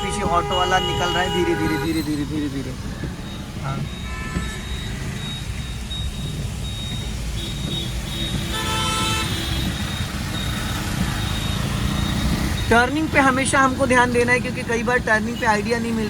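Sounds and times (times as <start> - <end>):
vehicle horn toot: 0.0 - 2.3, 3.7 - 5.3, 7.4 - 9.8
car driving rumble: 0.0 - 16.0.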